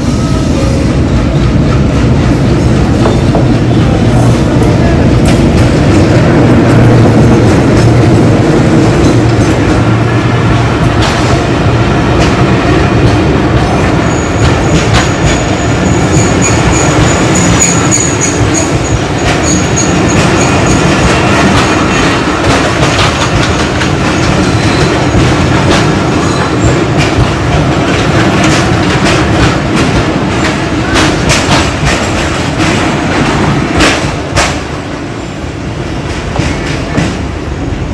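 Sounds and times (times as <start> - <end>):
steady train rumble: 0.0 - 37.9
train wheels clattering over rail joints: 10.8 - 34.9, 35.9 - 37.3.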